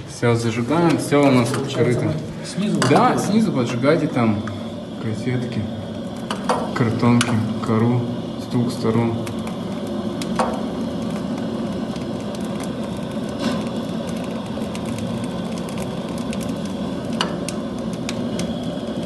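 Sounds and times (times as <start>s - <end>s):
fire hissing: 0.0s - 19.0s
kindling crackling in a fireplace: 0.0s - 19.0s
loud fire snaps: 5.9s - 19.0s.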